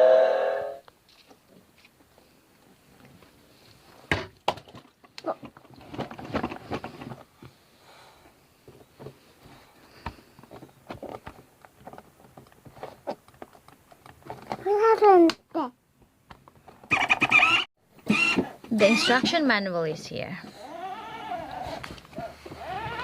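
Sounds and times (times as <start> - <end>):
hard objects knocking and clattering: 4.1 - 7.5.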